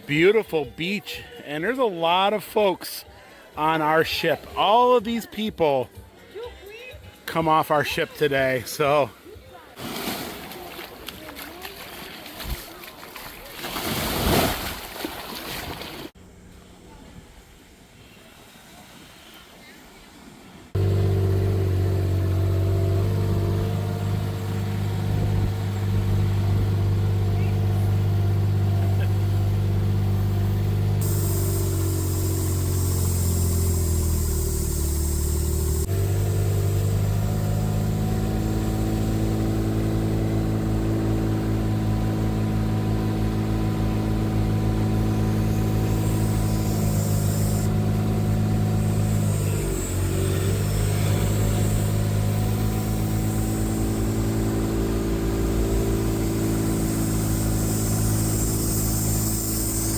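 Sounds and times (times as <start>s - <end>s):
engine running: 20.7s - 59.9s.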